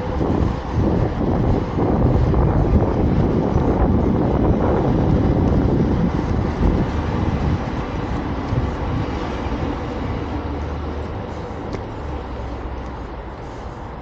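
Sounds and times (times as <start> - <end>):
vehicle passing by: 0.0 - 14.0.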